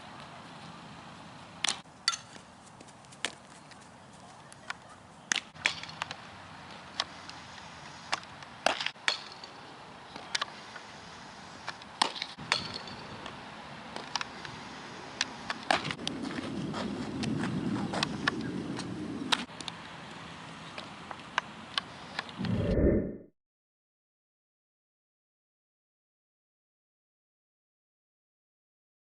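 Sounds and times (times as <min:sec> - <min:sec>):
low rumble: 0:22.4 - 0:23.3.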